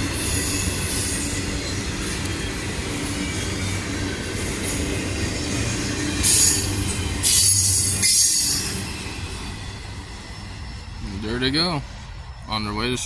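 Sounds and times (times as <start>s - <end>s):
freight train wheels rumbling: 0.0s - 13.0s
high-pitched wheel squeal: 4.6s - 11.0s.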